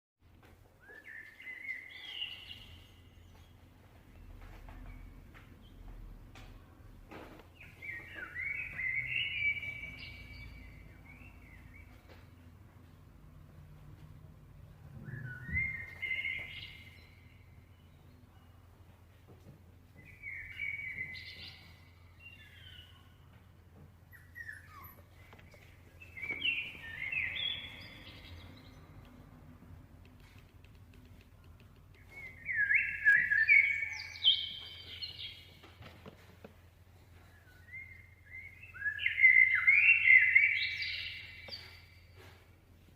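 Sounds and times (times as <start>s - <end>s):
high bird chirps: 7.6s - 12.4s, 15.0s - 18.3s, 20.0s - 23.1s, 24.1s - 29.0s, 32.0s - 35.6s, 37.4s - 42.2s.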